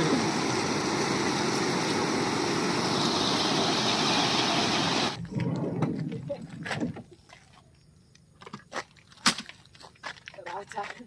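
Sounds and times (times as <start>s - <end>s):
waterfall roaring: 0.0s - 5.2s.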